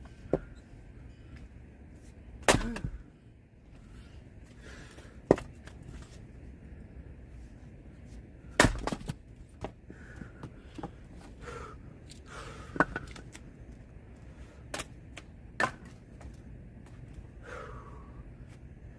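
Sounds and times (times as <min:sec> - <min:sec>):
axe chopping firewood: 0:02.4 - 0:03.0, 0:05.3 - 0:05.6, 0:08.5 - 0:09.7, 0:15.6 - 0:16.0.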